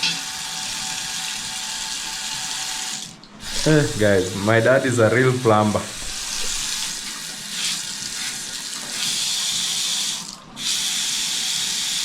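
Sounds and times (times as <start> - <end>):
tap water running: 0.0 - 12.0.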